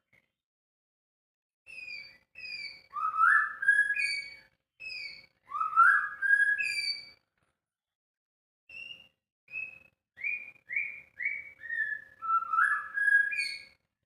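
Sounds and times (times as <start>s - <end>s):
bird singing whistled notes: 1.7s - 7.2s, 8.7s - 13.8s.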